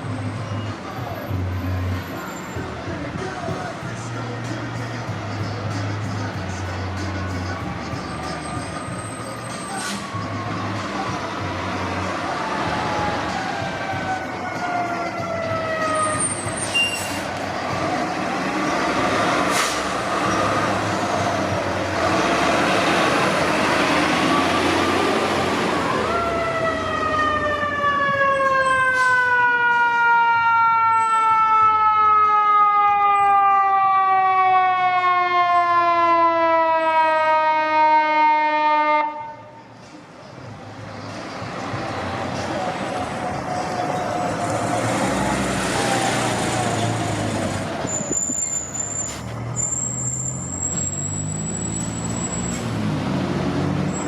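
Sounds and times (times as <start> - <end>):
heavy truck engine passing: 0.0 - 30.1, 39.7 - 54.0
fire engine siren: 7.5 - 39.6, 42.7 - 54.0.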